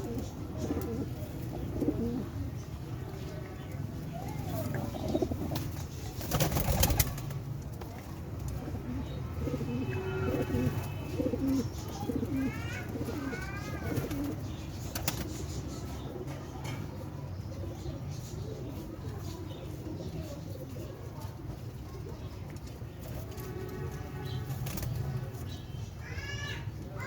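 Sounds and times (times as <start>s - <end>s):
pigeons cooing: 0.0s - 3.3s, 4.1s - 7.2s, 8.6s - 16.7s.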